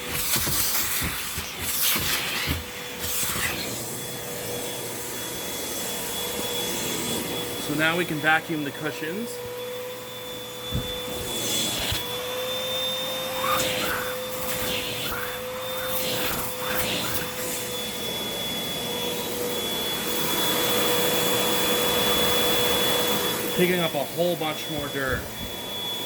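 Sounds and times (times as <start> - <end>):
suction hiss on fabric: 0.0 - 3.8, 13.4 - 17.7
vacuum cleaner running: 0.0 - 26.0
thump: 10.7 - 11.3.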